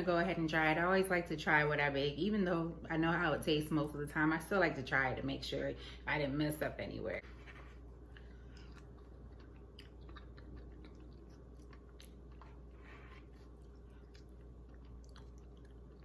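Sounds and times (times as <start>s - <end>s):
low steady hum: 0.0s - 16.0s
person chewing: 7.7s - 16.0s.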